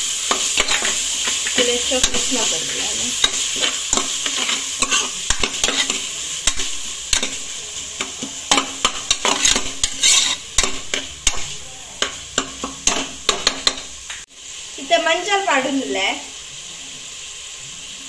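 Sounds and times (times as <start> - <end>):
vegetables sizzling in oil: 0.0 - 18.0
spatula scraping metal pot: 0.3 - 13.8.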